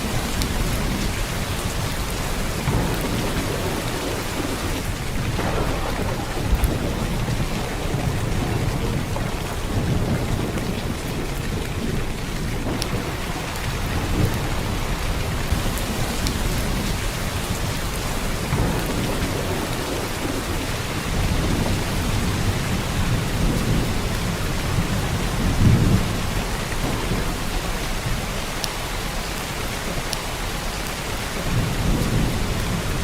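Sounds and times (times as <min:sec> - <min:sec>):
heavy rain pouring: 0:00.0 - 0:33.0.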